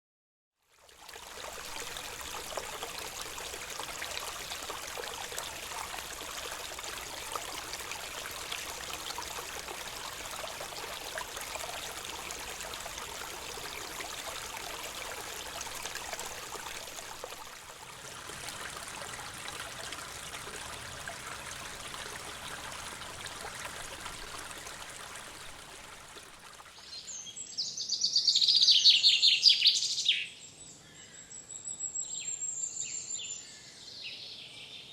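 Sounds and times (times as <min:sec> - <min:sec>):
stream water rushing and trickling: 0:00.6 - 0:27.8.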